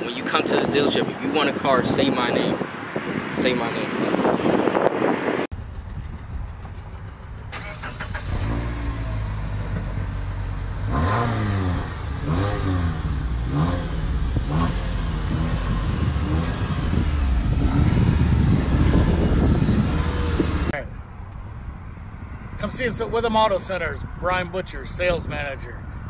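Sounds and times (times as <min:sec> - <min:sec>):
car engine idling and revving: 0:04.4 - 0:21.4.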